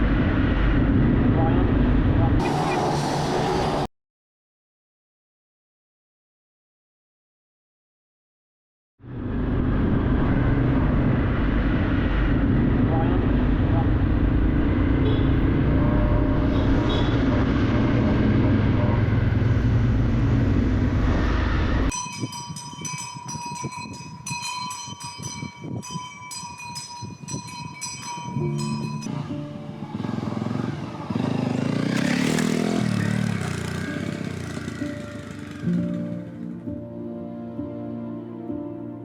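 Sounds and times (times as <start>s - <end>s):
motorcycle engine drone: 0.0s - 3.9s, 9.0s - 21.9s, 28.2s - 36.8s
music with high tones: 21.9s - 36.9s.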